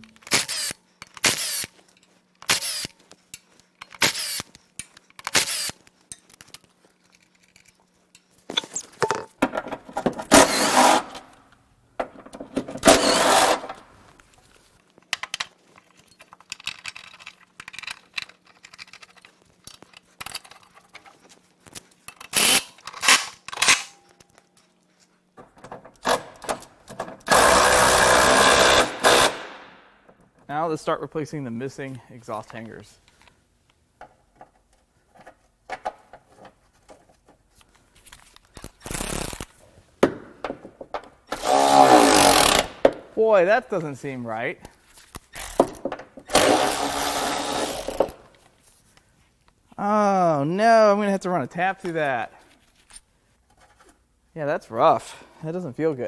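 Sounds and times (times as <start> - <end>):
power tool running: 0.2 - 1.7, 2.4 - 2.9, 4.0 - 4.5, 5.3 - 5.8, 10.3 - 11.2, 12.8 - 13.7, 27.3 - 29.5, 41.3 - 42.8, 45.4 - 48.2
ratchet bursts: 0.2 - 1.8, 2.4 - 3.0, 3.8 - 5.9, 12.8 - 13.7, 22.2 - 24.0, 27.3 - 29.5, 38.5 - 39.5, 41.3 - 42.8, 45.3 - 48.2.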